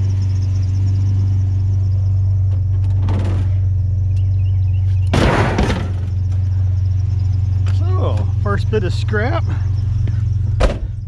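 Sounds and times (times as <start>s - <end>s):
truck engine idling: 0.0s - 11.0s
loud thump and clatter: 2.5s - 3.7s, 5.1s - 6.4s, 10.6s - 11.0s.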